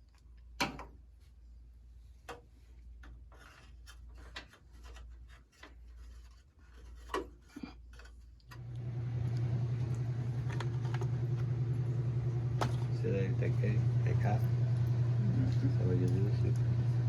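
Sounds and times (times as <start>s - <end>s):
low machine hum: 8.5s - 17.0s.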